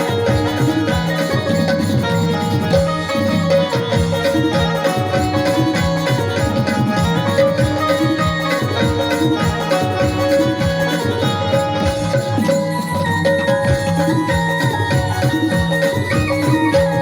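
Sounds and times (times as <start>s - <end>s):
electronic keyboard melody: 0.0s - 17.0s
fast drum rhythm: 0.0s - 17.0s.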